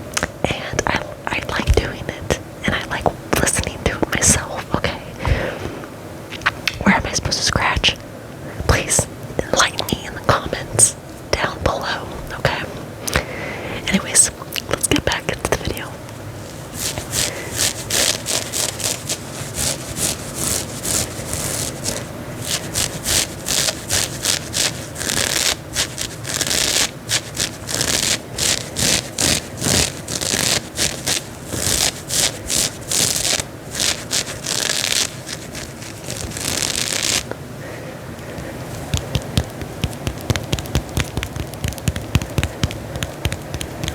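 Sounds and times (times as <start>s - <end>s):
fingernails scratching fabric: 16.4s - 37.3s, 38.3s - 43.9s.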